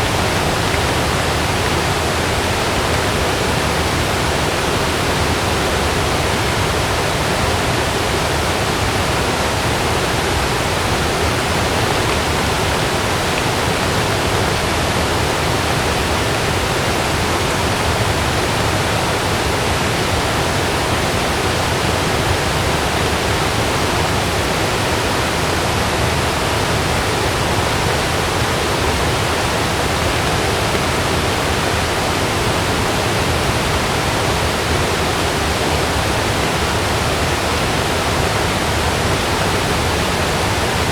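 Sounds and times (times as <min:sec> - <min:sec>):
heavy rain on a tent: 0:00.0 - 0:40.9.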